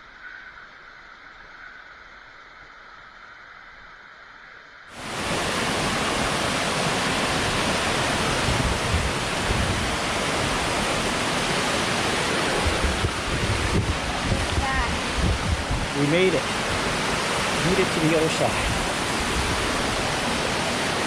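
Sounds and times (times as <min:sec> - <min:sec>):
rushing water: 0:04.9 - 0:21.0.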